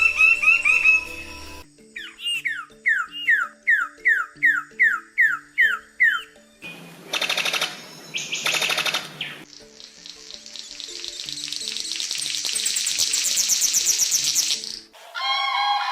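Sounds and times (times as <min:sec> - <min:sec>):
bird calling downward notes: 0:00.0 - 0:15.9
soft background music: 0:00.0 - 0:15.9
bird chattering rattle: 0:07.1 - 0:14.8.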